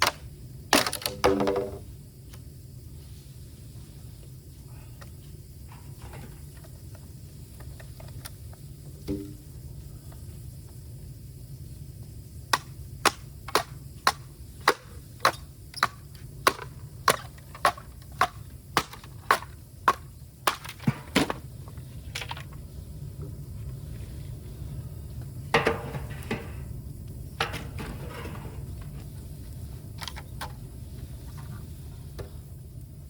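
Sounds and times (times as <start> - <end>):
sharp knocks on bamboo: 0.0 - 1.8, 9.0 - 9.4, 12.5 - 21.4
bamboo cracking splits: 0.8 - 1.8.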